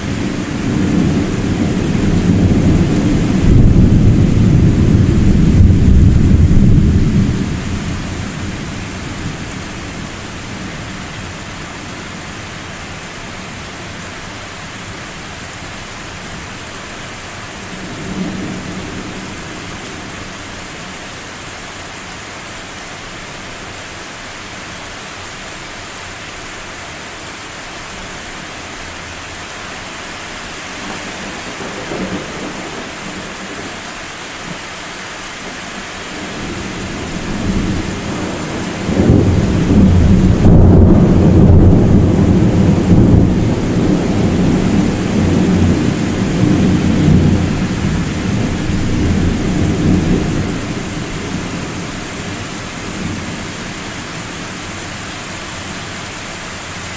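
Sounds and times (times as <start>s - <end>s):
thunder rumbling: 0.0s - 10.7s, 30.8s - 33.8s, 36.2s - 54.3s
steady rain hissing: 0.0s - 56.9s.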